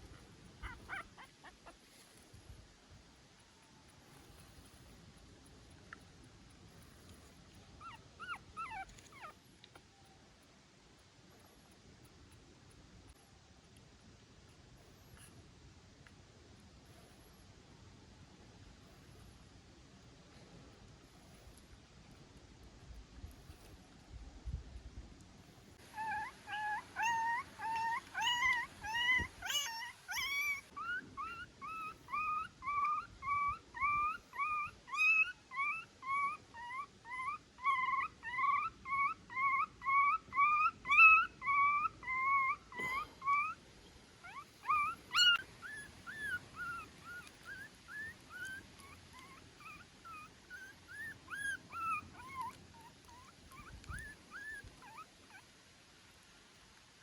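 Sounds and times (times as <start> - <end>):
puppy whimpering squeals: 0.6 - 1.8, 7.8 - 9.4, 25.9 - 43.6, 44.2 - 55.5.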